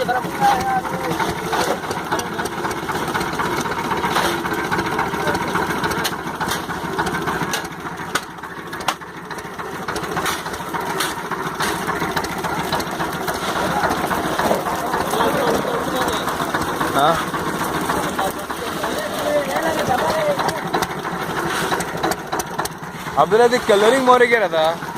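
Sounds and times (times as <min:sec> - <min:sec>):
boat engine running: 0:00.0 - 0:24.9
sharp clicks and knocks: 0:00.5 - 0:04.6, 0:05.7 - 0:14.8.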